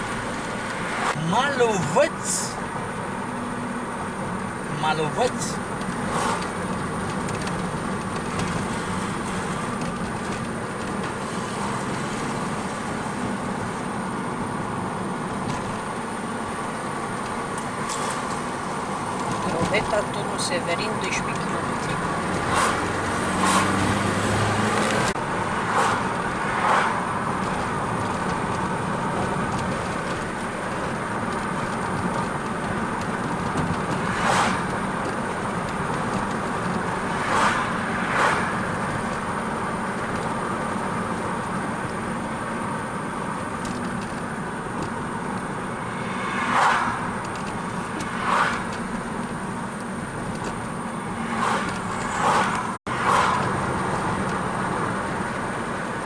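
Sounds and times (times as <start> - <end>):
car road and engine noise: 0.0 - 56.0
short louder rushes: 46.0 - 47.1.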